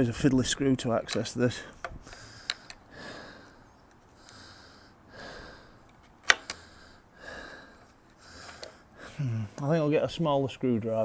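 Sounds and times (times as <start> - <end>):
soft breathing: 1.6 - 9.6.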